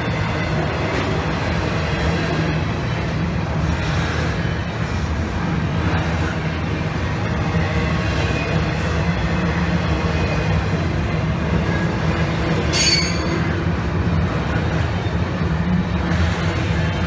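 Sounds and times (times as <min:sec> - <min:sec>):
train rumbling on rails: 0:00.0 - 0:17.0
wheel squeal: 0:12.7 - 0:13.6.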